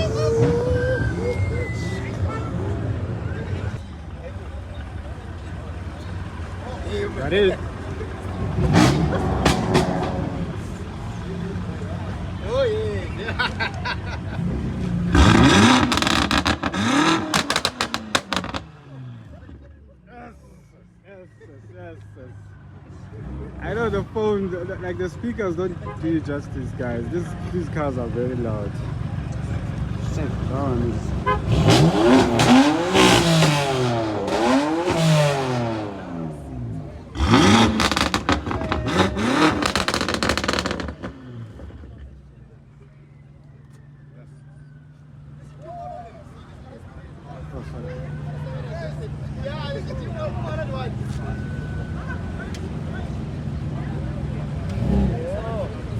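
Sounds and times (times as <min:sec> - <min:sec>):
car engines revving hard: 0:04.4 - 0:19.8, 0:26.2 - 0:42.3, 0:47.0 - 0:55.9
car engine revving hard: 0:08.4 - 0:10.8, 0:14.4 - 0:19.3, 0:31.2 - 0:42.0, 0:54.6 - 0:55.4
exhaust pops and crackles: 0:15.2 - 0:18.8, 0:37.2 - 0:42.2.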